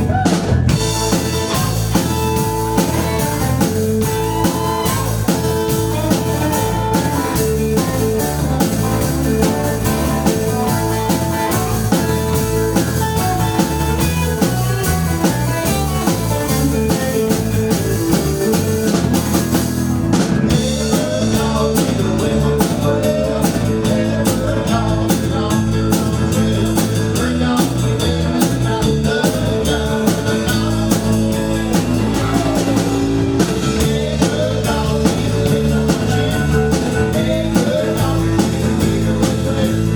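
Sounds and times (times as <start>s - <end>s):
blues-rock band playing: 0.0s - 39.9s.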